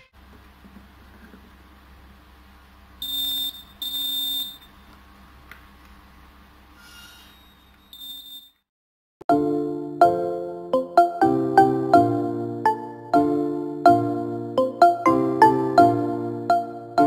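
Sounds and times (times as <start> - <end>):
electronic buzzer beeping: 3.0 - 4.7, 7.3 - 8.6
faint short beeps: 3.0 - 4.7, 7.4 - 8.6.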